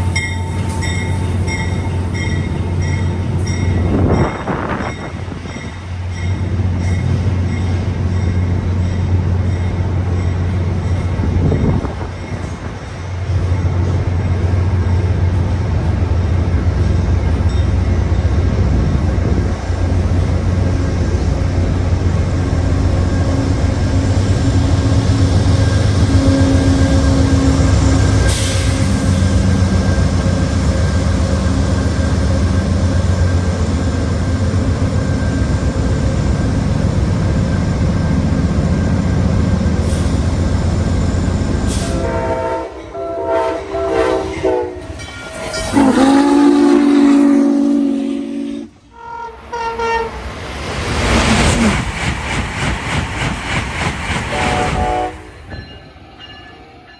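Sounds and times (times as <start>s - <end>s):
train engine drone: 0.0s - 56.9s
train horn blasts: 41.7s - 50.2s, 54.3s - 55.4s.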